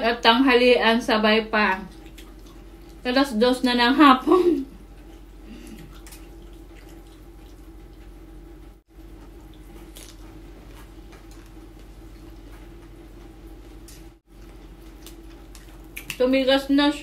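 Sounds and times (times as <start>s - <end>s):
steady low hum: 0.0s - 17.0s
person chewing: 1.9s - 3.0s, 4.9s - 8.1s, 9.1s - 12.9s, 13.6s - 16.2s.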